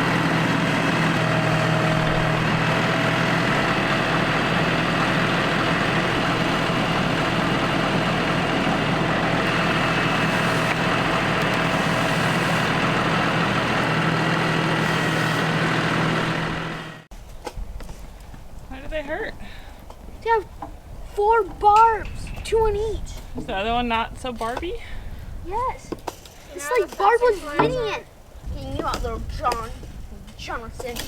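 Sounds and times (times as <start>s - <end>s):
engine running steadily: 0.0s - 17.1s.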